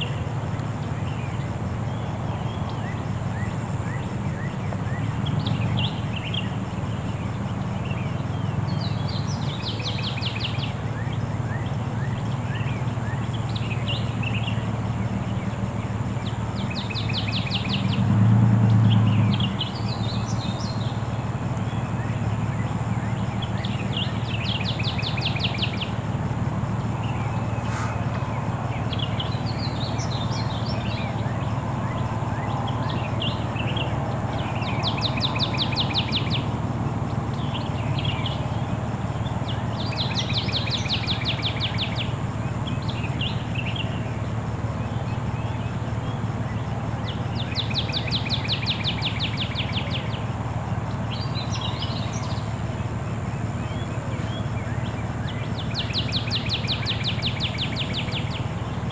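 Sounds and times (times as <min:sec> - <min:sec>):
bird ticking trill: 0:00.0 - 0:58.9
birds chirping: 0:00.0 - 0:58.9
steady low rumble: 0:10.3 - 0:40.0.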